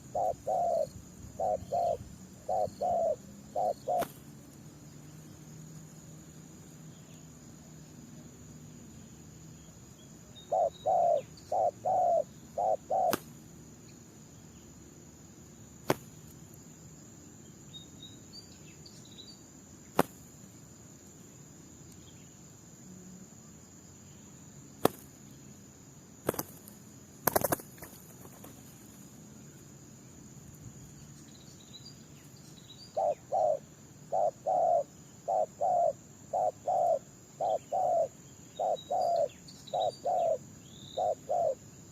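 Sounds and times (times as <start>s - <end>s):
doves cooing: 0.0s - 4.3s, 10.4s - 13.3s, 32.9s - 40.4s, 41.0s - 41.6s.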